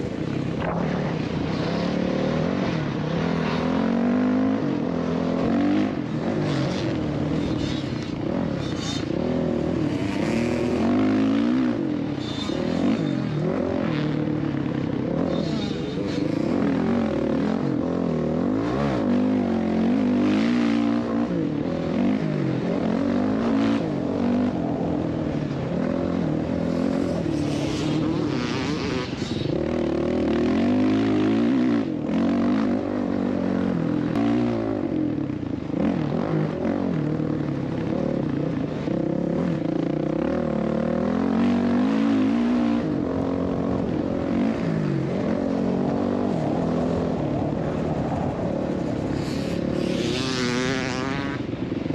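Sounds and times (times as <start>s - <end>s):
dirt bike engine revving: 25.6s - 34.7s, 49.0s - 51.5s.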